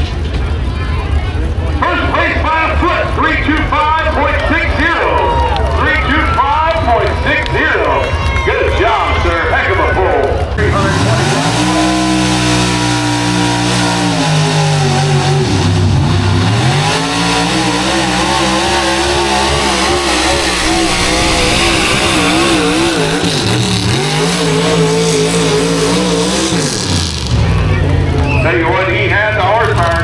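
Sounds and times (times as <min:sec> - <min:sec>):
truck engine revving at full throttle: 0:10.5 - 0:28.4.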